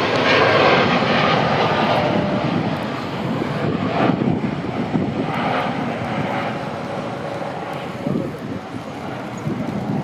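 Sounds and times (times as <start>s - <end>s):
jet engines at takeoff: 0.0s - 10.0s.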